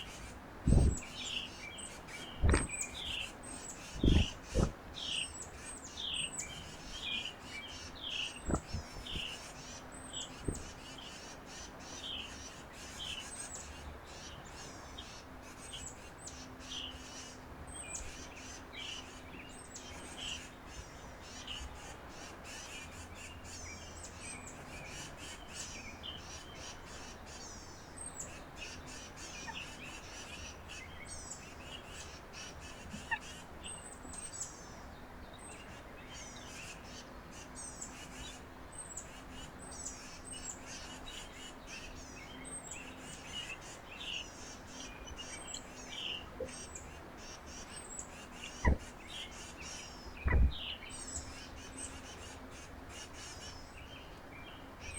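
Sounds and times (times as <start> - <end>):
birds chirping and calling: 0.0 - 54.9
loud low thumps: 4.0 - 4.8, 50.2 - 50.6.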